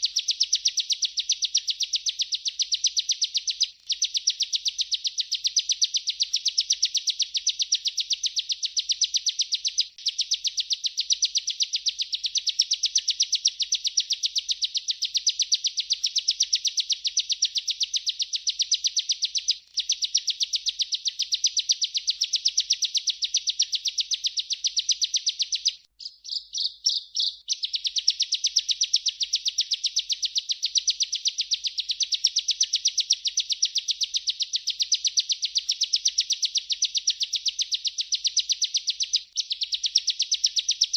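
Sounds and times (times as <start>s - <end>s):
bird trilling song: 0.0s - 40.9s.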